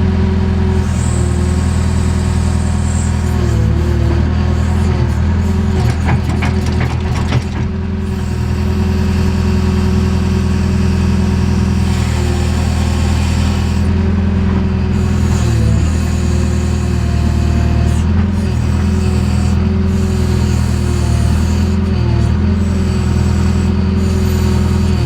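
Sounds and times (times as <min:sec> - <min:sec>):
diesel engine running: 0:00.0 - 0:25.0
digging gear knocks and clanks: 0:04.8 - 0:07.8.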